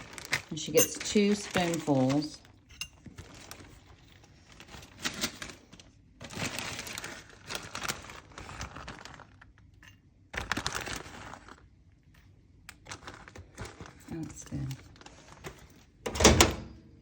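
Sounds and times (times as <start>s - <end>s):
spoon scraping and clinking bowl: 0.7s - 1.3s.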